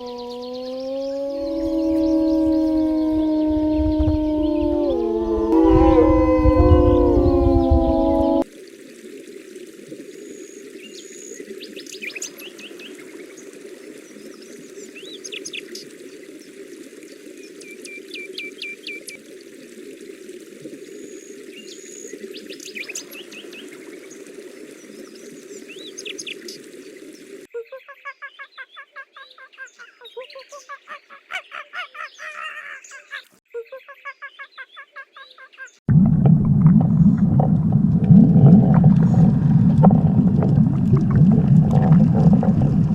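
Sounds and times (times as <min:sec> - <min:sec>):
small birds chirping and trilling: 0:00.0 - 0:08.4, 0:27.5 - 0:35.8
fast repeated bird calls: 0:27.9 - 0:35.8.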